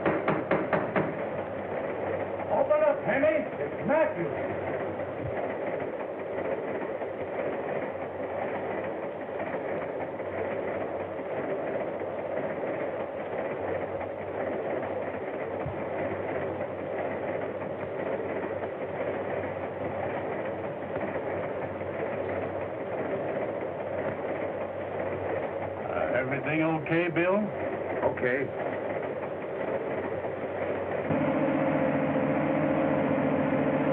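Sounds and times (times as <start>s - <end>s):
train rumbling along rails: 0.0s - 33.9s.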